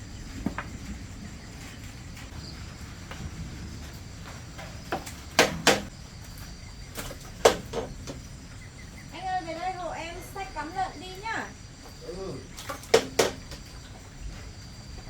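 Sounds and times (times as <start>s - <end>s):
sharp knocks: 4.6s - 5.9s, 7.0s - 8.3s, 12.6s - 13.7s.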